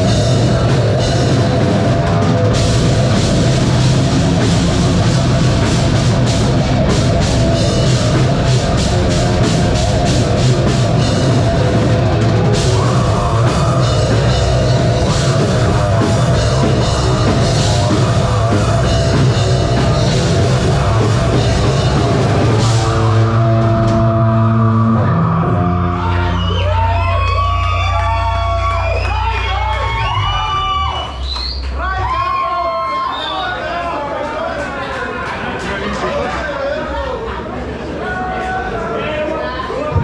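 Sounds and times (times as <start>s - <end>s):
fast drum kit hits: 0.0s - 25.6s
live metal band playing: 0.0s - 30.2s
distorted guitars: 0.0s - 30.9s.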